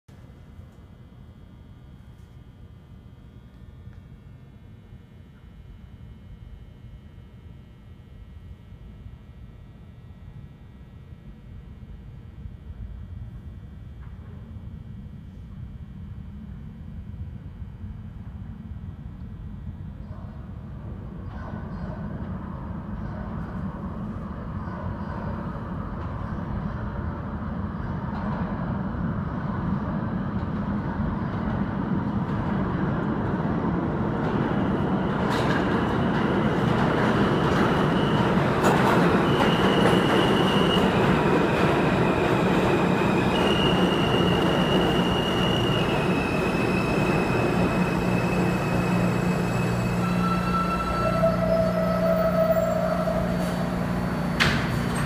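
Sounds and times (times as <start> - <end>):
subway train rumble: 0.1 - 55.0
high train whines shifting pitch: 33.7 - 55.0.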